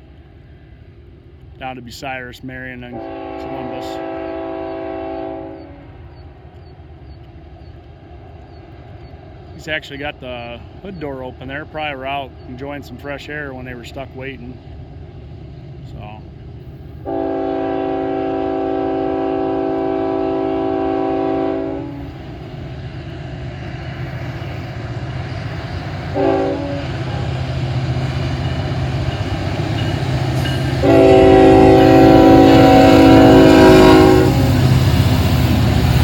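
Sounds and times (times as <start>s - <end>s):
diesel locomotive rumble: 0.0s - 36.0s
locomotive air horn: 2.9s - 5.8s, 17.0s - 22.1s, 26.1s - 27.0s, 30.8s - 34.7s.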